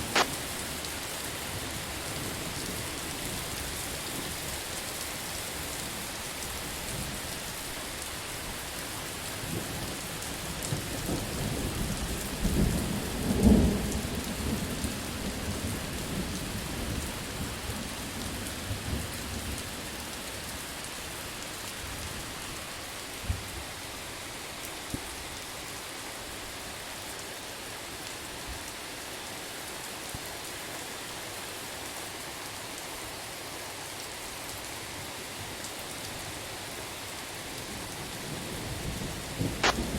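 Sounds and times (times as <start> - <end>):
heavy rain: 0.0 - 39.9
thunder rumbling and cracking: 38.7 - 39.9.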